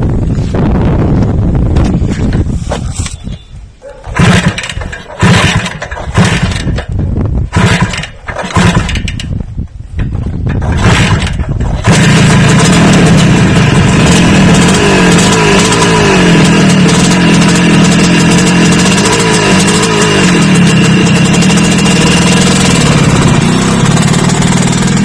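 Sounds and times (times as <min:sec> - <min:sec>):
engine revving: 0:04.2 - 0:06.8, 0:07.5 - 0:09.1, 0:10.6 - 0:25.0.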